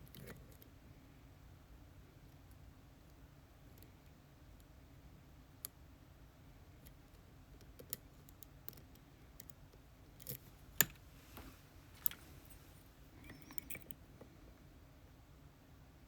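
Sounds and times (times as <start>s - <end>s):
lock pick clicking in lock: 13.2s - 14.0s.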